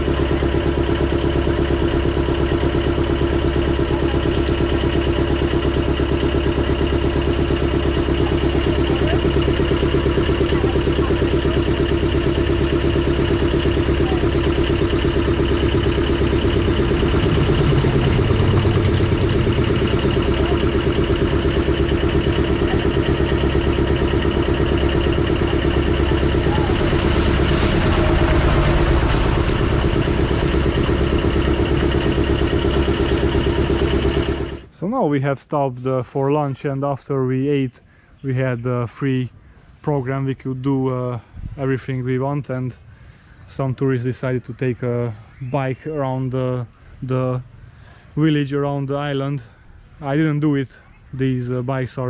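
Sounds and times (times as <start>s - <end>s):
motorboat engine droning: 0.0s - 35.1s.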